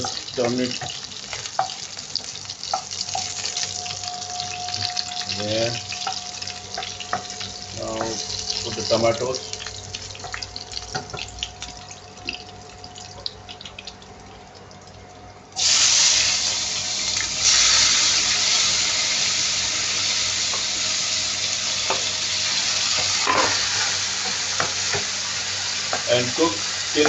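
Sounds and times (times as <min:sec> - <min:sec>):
food sizzling in hot oil: 0:00.0 - 0:14.0, 0:15.6 - 0:27.0
spoon knocking on pan: 0:24.2 - 0:25.1.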